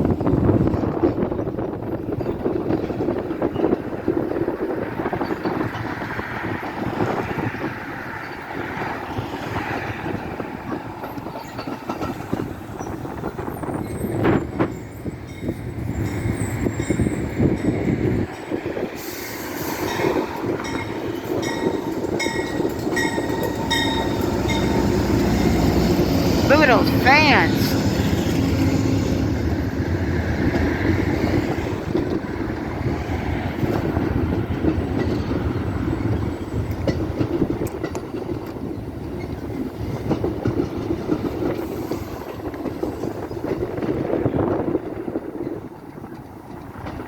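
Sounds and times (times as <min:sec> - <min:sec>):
train wheels rumbling on track: 0:00.0 - 0:47.0
clicks of wheels on rails: 0:02.0 - 0:13.6, 0:33.6 - 0:44.3, 0:45.1 - 0:47.0.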